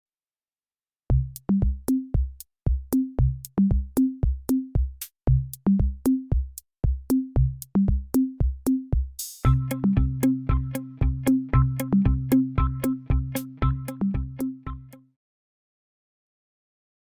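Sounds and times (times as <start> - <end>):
drum machine beat: 1.1 - 15.0.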